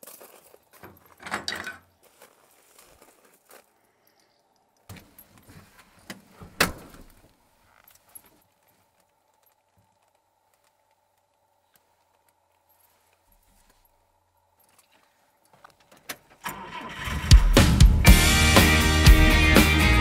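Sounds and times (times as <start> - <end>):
car engine cranking and starting: 16.4 - 18.8
music: 17.3 - 20.0.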